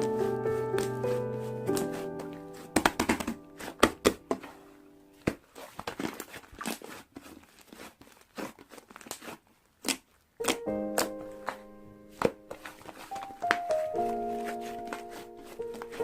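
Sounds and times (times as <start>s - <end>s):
piano piece: 0.0s - 5.2s, 10.4s - 16.0s
packaging crinkling: 5.2s - 16.0s.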